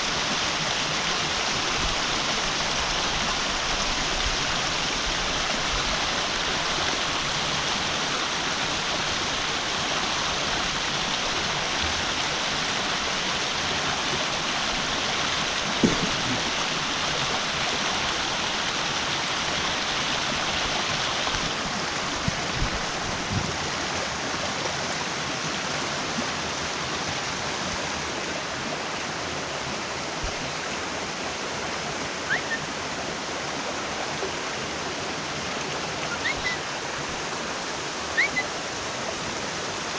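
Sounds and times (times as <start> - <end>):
stream rushing: 0.0 - 39.9
brief knocks: 15.8 - 16.4.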